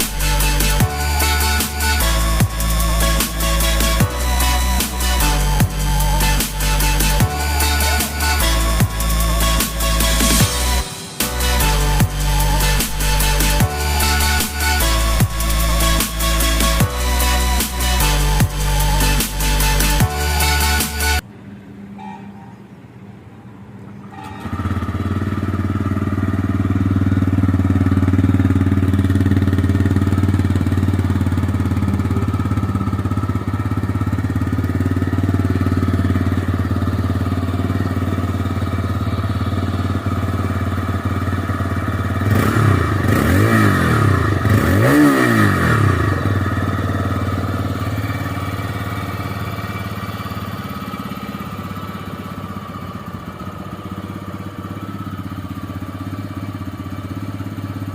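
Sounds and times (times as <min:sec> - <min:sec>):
motorcycle engine idling and revving: 0:00.0 - 0:57.9.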